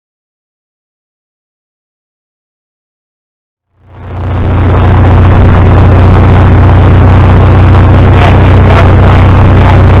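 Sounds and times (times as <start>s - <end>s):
engine running with deep hum: 3.8s - 10.0s.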